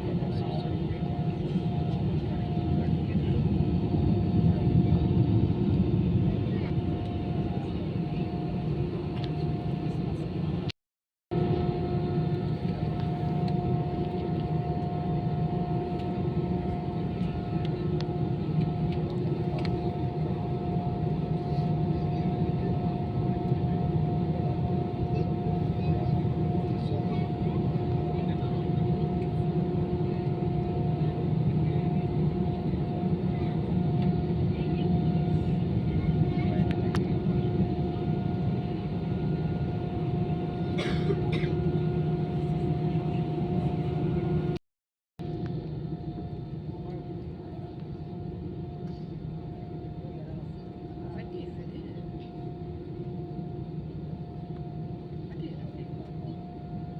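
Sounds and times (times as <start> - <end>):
aircraft cabin rumble: 0.1 - 10.7, 11.4 - 44.6
engine whine: 11.4 - 44.6.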